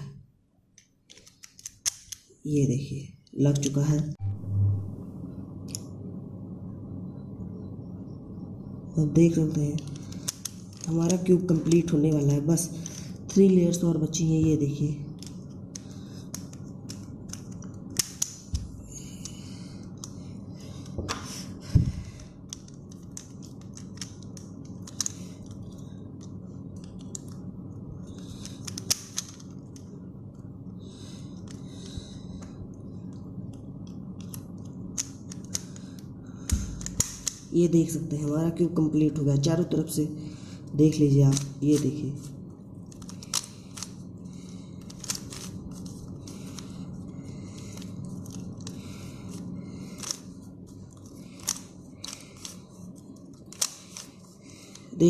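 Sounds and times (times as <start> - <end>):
plastic puzzle cube clicking: 0.8 - 2.2, 9.8 - 12.0, 15.1 - 18.5, 22.5 - 27.4, 28.1 - 29.9, 34.2 - 35.8, 36.5 - 37.4, 41.3 - 42.0, 42.9 - 44.0, 44.8 - 46.7, 51.3 - 52.6, 53.5 - 54.1.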